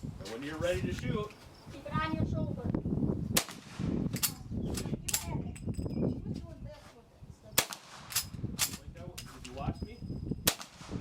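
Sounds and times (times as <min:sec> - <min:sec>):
gunshots: 0:07.6 - 0:08.7, 0:10.5 - 0:11.0.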